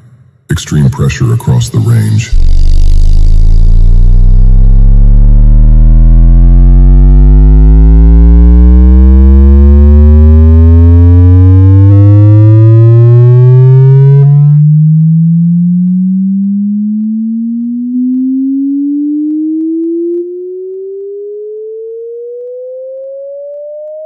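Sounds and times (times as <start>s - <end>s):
rising bass sweep tone: 2.3s - 21.5s.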